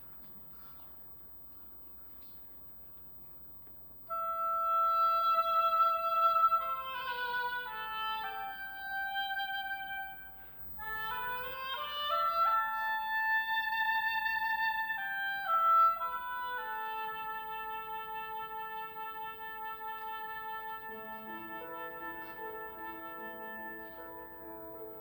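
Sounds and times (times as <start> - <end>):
choir singing held chords: 20.8 - 25.0.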